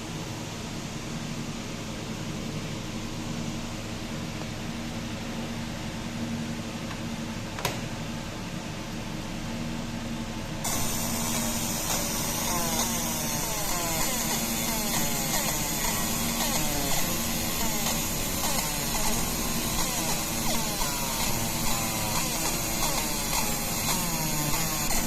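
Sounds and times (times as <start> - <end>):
fan hum: 0.0 - 25.0
laser marking hiss: 10.6 - 25.0.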